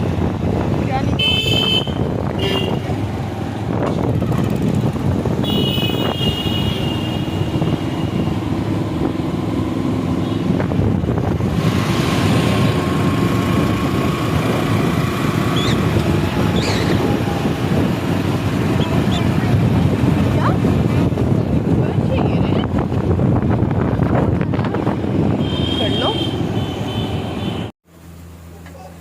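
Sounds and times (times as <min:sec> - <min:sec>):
engine and road rumble: 0:00.0 - 0:29.0
vehicle horn tooting: 0:01.1 - 0:02.9, 0:05.4 - 0:08.2, 0:25.4 - 0:27.7.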